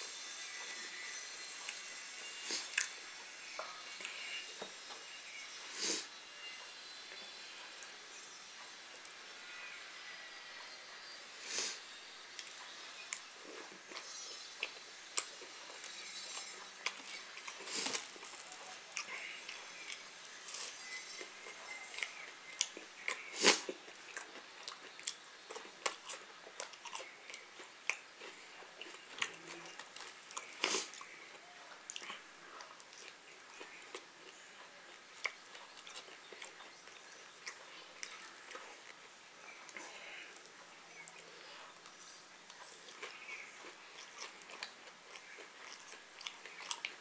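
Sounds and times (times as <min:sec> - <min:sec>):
person chewing food: 0:12.3 - 0:47.0.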